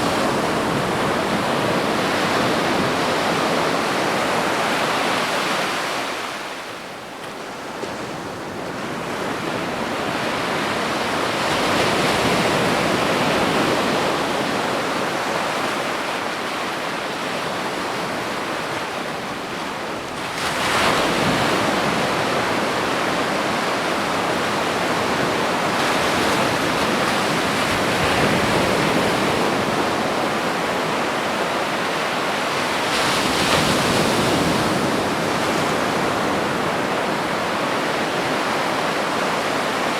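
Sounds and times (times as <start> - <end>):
ocean waves breaking: 18.0 - 39.9.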